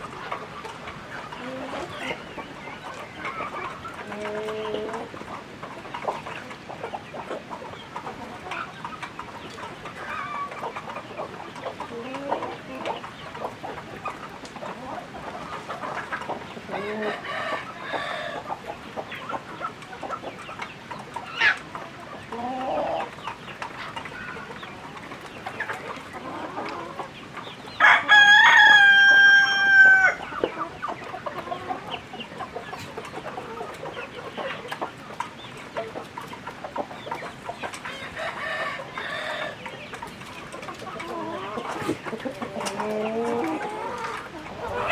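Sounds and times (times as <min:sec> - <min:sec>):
chickens clucking: 0:00.0 - 0:44.9
rooster crowing: 0:27.8 - 0:30.2.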